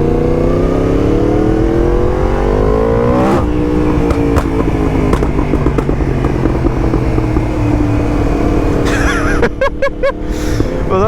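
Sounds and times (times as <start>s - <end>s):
motorcycle engine accelerating: 0.0s - 11.0s
exhaust pops: 1.3s - 9.0s.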